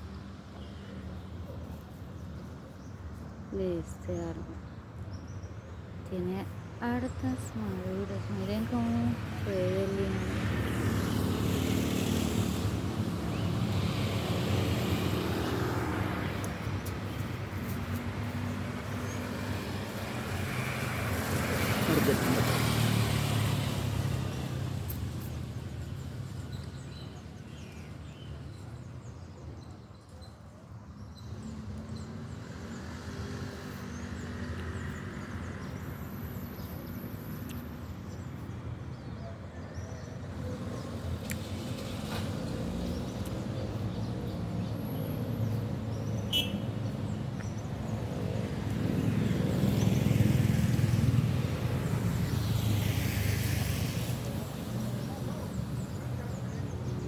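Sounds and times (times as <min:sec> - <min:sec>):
vehicle engine humming: 0:07.0 - 0:25.8.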